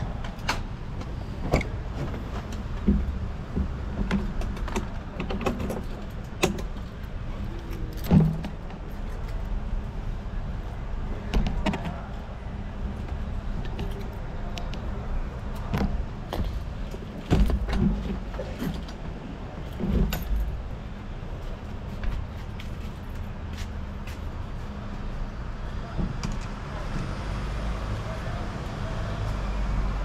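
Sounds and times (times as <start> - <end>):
rattling clicks and knocks: 0.2 - 7.0.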